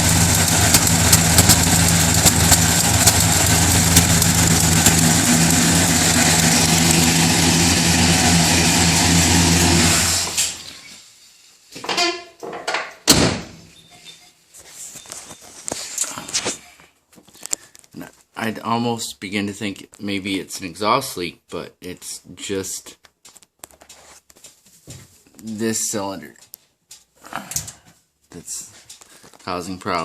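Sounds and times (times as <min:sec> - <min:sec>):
car engine idling with ticking: 0:00.0 - 0:08.5.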